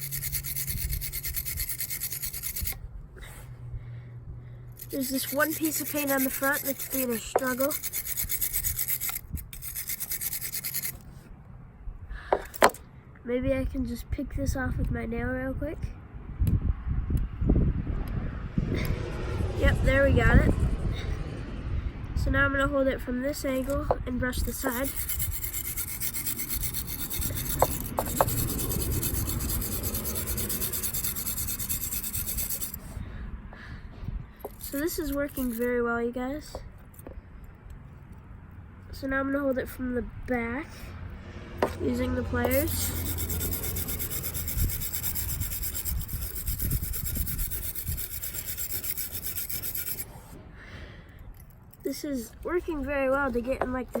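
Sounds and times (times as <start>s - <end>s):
wire brush scrubbing metal: 0.0s - 2.8s, 4.7s - 11.2s, 23.3s - 33.0s, 34.4s - 35.8s, 41.6s - 50.4s.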